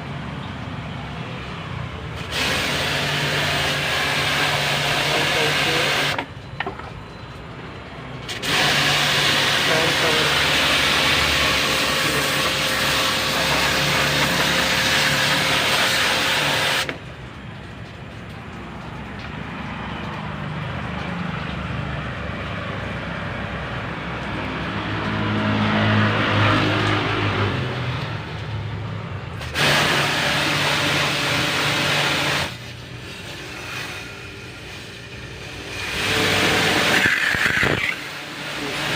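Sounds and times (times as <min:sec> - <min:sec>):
pressure washer hum: 0:01.5 - 0:06.8, 0:07.7 - 0:38.9
high-pressure water jet spraying: 0:02.0 - 0:06.3, 0:08.2 - 0:17.2, 0:29.4 - 0:38.9.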